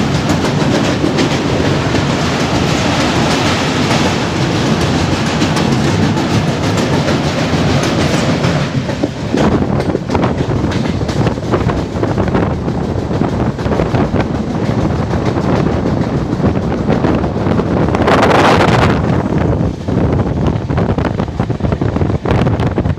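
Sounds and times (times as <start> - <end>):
wheels clicking over rail joints: 0.0 - 18.0
train wheels rumbling on rail: 0.0 - 22.9.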